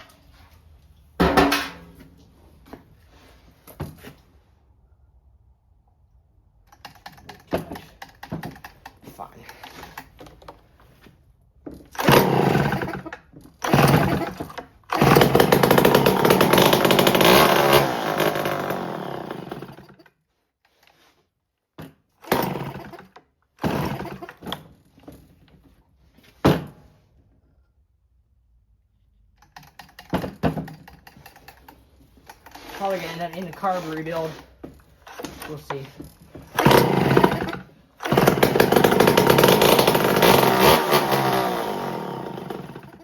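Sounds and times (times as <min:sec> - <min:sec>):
chainsaw starting and sputtering: 0:11.9 - 0:20.0, 0:22.2 - 0:24.5, 0:32.3 - 0:43.0.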